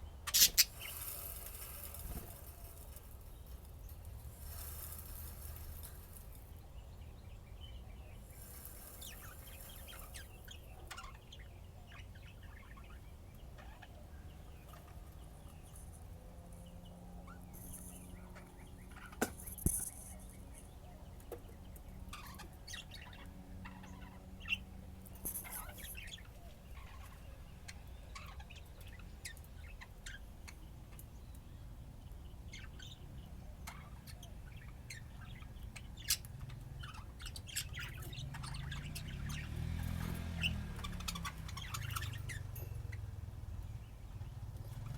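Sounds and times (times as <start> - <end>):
budgerigars chirping: 0.3 - 3.3, 33.7 - 42.6.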